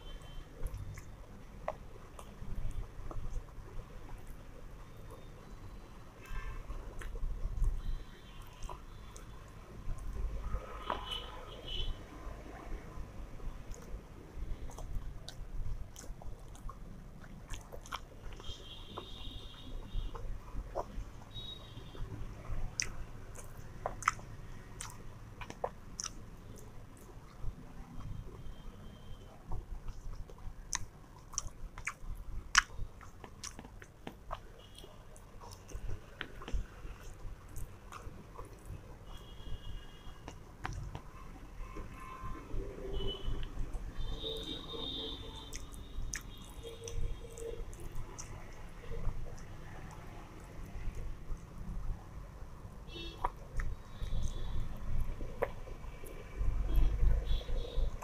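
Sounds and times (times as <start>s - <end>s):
person chewing food: 0.0s - 11.8s, 12.8s - 52.2s, 53.0s - 58.0s
wet mouth clicks and smacks: 0.6s - 3.4s, 6.2s - 11.3s, 13.6s - 19.1s, 20.0s - 21.4s, 22.3s - 28.1s, 29.5s - 39.3s, 40.2s - 41.2s, 45.4s - 51.9s, 53.2s - 58.0s.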